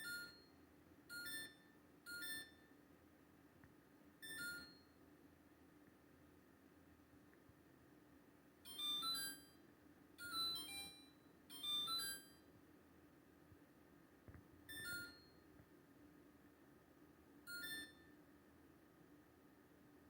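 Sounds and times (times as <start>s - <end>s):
refrigerator beep chimes: 0.0s - 2.7s, 4.2s - 5.0s, 8.6s - 9.6s, 10.2s - 12.5s, 14.7s - 15.5s, 17.5s - 18.2s.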